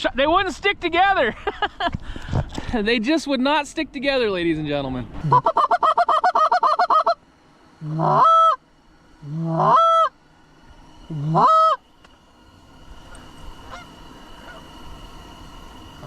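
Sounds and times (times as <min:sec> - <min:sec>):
goose clucking and honking: 0:07.9 - 0:08.6, 0:09.3 - 0:10.1, 0:11.1 - 0:11.8, 0:13.7 - 0:14.7.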